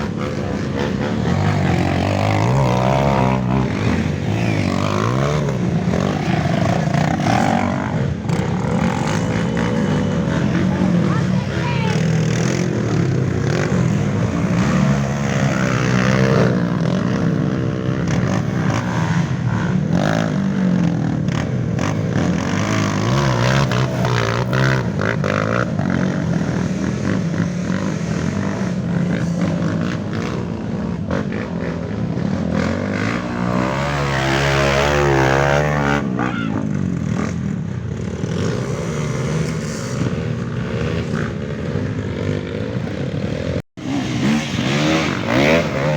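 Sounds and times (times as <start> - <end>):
motorcycle engines revving: 0.0 - 45.9.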